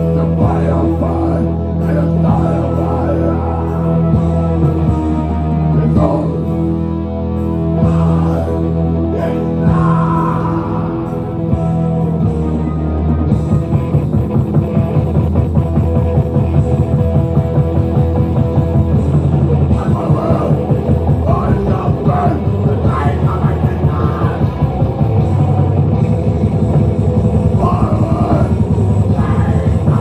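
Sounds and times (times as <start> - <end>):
person singing: 0.0 - 6.7, 7.7 - 12.2, 19.7 - 25.3, 27.5 - 30.0
rock band playing live: 0.0 - 30.0.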